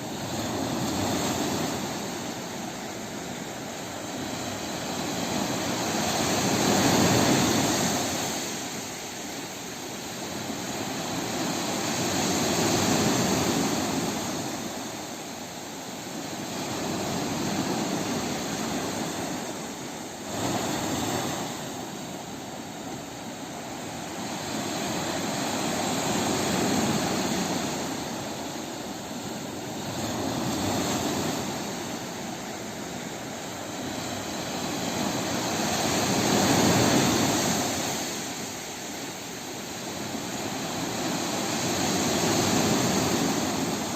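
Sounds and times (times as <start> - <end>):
sea waves breaking: 0.0 - 43.9.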